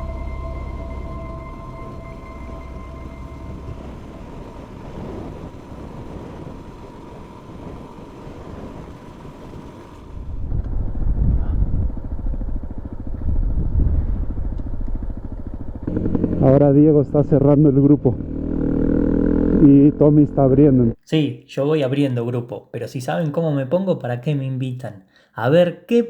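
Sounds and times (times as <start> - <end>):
motorcycle engine running: 0.0 - 21.0
wind rushing over microphone: 1.8 - 18.6.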